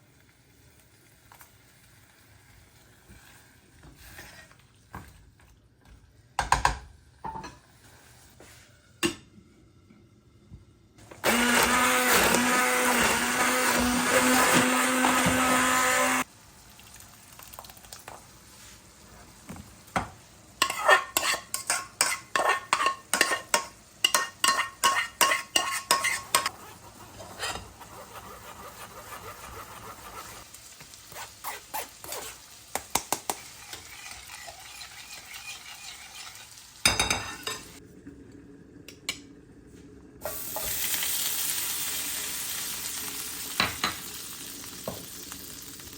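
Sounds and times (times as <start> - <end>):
kitchen blender running: 11.0 - 16.3.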